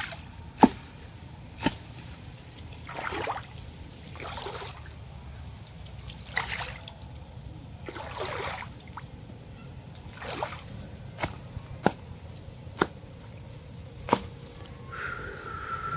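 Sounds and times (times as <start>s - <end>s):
low steady rumble: 0.0s - 15.9s
water splashing: 2.5s - 7.2s, 7.8s - 9.1s, 10.0s - 12.0s.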